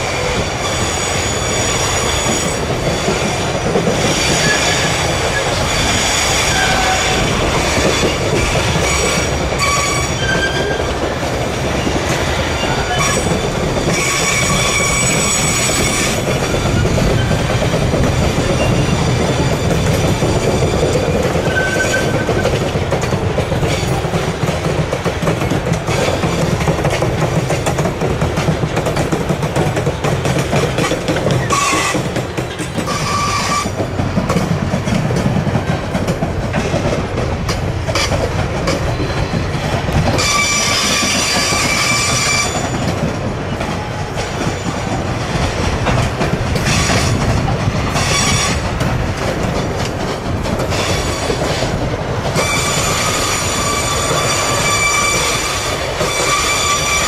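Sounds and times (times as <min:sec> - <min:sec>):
steel wheels squealing: 0:00.0 - 0:11.0, 0:11.8 - 0:22.5, 0:30.8 - 0:32.1, 0:32.8 - 0:34.4, 0:37.9 - 0:44.8, 0:47.9 - 0:48.6, 0:52.4 - 0:57.0
train wagons rumbling and clattering: 0:00.0 - 0:57.0.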